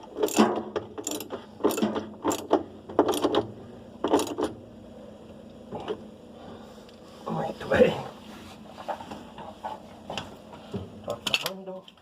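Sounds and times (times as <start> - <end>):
ratchet wrench clicking: 1.0 - 2.5.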